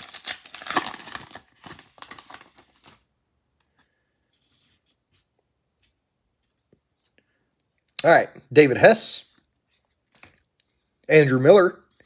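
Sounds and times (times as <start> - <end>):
wrapper tearing and crinkling: 0.0 - 3.0.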